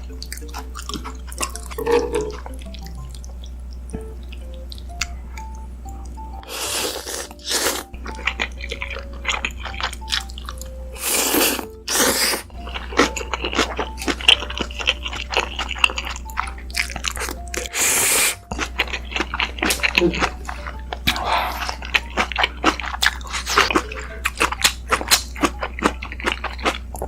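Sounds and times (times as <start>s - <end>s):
faint melody: 0.0s - 27.0s
noodle slurping: 6.4s - 9.8s, 10.9s - 16.2s, 16.8s - 26.7s.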